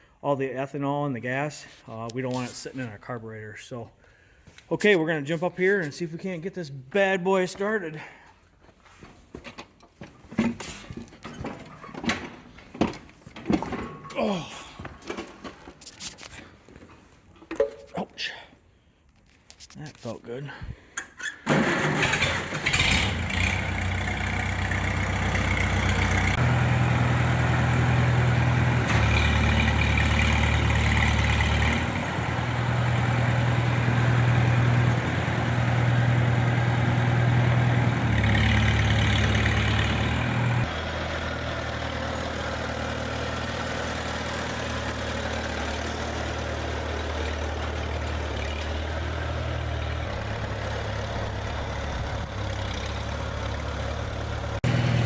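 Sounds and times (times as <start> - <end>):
tractor engine running: 21.0 - 55.0.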